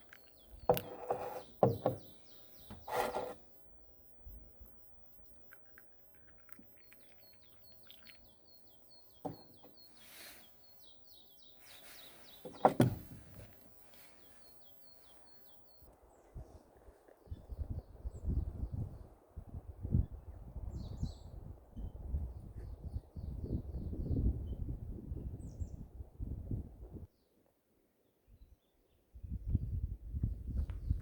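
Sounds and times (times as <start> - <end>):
bird chirping: 0.0 - 3.4, 5.4 - 16.2.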